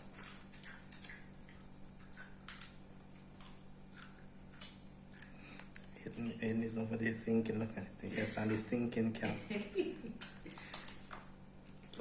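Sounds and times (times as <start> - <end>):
tortilla chips crunching: 0.0 - 6.0
low steady hum: 0.0 - 12.0.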